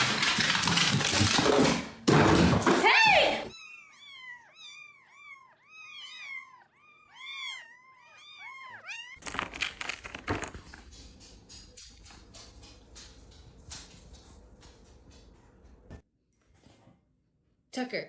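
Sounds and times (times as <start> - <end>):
noisy clatter with knocks: 0.0 - 3.2, 9.2 - 16.0
cat meowing: 3.5 - 9.2.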